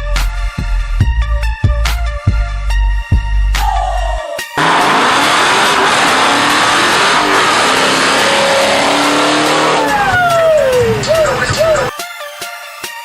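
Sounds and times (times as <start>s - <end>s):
car engine high revs: 4.6s - 11.9s.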